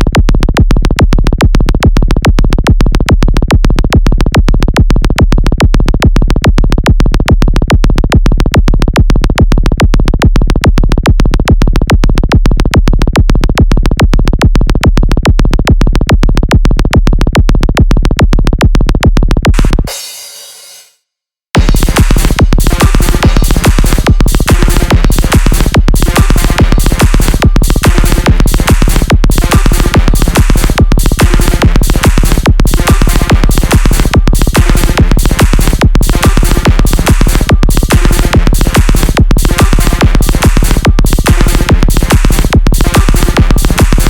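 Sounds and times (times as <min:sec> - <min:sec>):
electronic dance music: 0:19.5 - 0:21.0, 0:21.6 - 0:44.0.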